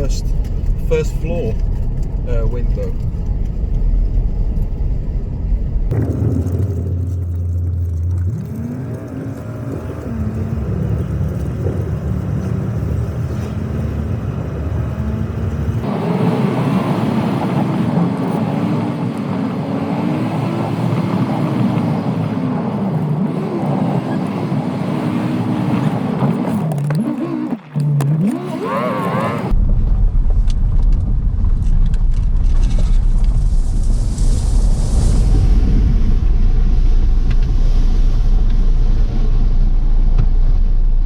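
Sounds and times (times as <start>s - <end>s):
car engine and road noise: 0.0s - 41.0s.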